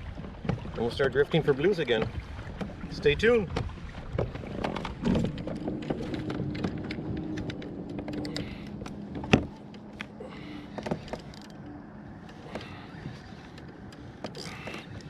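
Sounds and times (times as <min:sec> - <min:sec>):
kayak pedal drive humming: 0:00.0 - 0:15.0
small clicks and knocks: 0:03.6 - 0:10.1.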